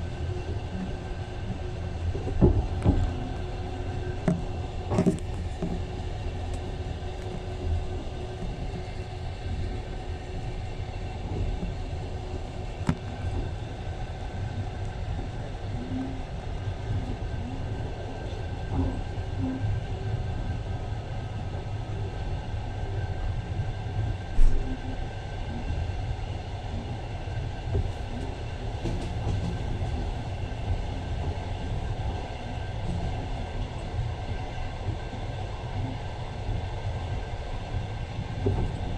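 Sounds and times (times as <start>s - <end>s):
train rumbling on track: 0.0s - 38.9s.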